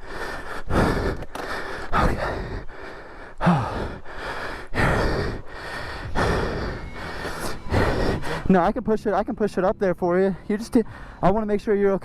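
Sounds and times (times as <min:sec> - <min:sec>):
person breathing hard: 0:00.0 - 0:08.6, 0:10.3 - 0:11.2.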